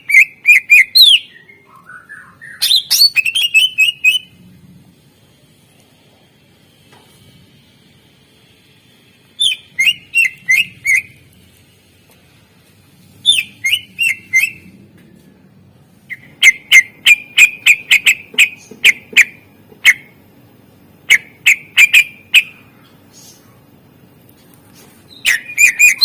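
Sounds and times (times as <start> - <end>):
bird whistling sharp notes: 9.4 - 11.2.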